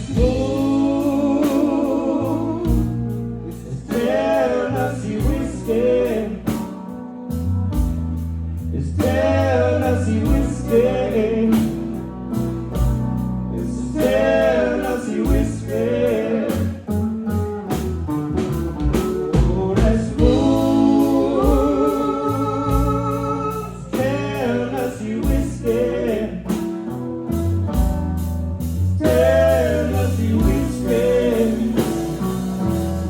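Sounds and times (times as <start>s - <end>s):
person singing: 0.0s - 6.8s, 8.8s - 12.0s, 19.2s - 26.6s, 29.0s - 33.0s
steady drum beat: 0.0s - 8.4s, 9.0s - 33.0s
bass line: 0.0s - 33.0s.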